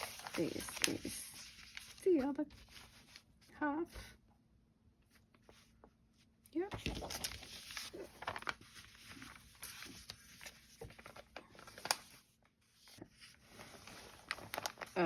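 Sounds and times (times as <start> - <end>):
paper rustling and crinkling: 0.0 - 3.5, 6.6 - 15.0.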